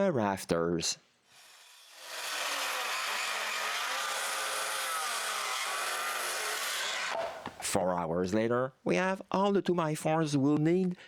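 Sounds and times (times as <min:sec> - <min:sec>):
power saw cutting wood: 0:01.3 - 0:07.7.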